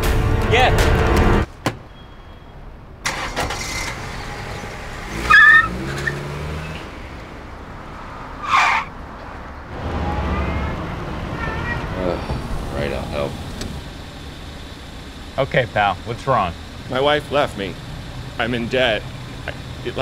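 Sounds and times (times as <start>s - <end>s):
cars driving by: 1.0s - 20.0s
car horn honk: 5.1s - 6.2s, 9.9s - 12.0s.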